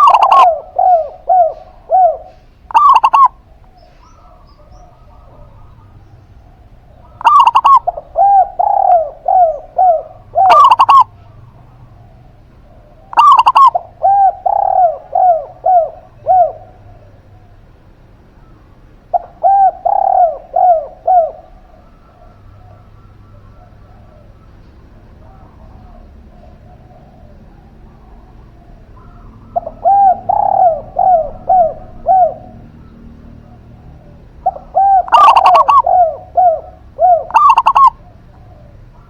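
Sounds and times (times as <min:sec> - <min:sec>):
dove cooing: 0:00.0 - 0:39.0.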